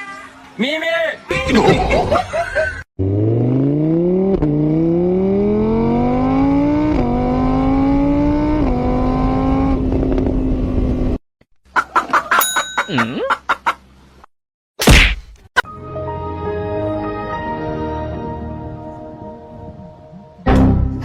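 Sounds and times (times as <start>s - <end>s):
vehicle engine accelerating: 3.0s - 11.2s.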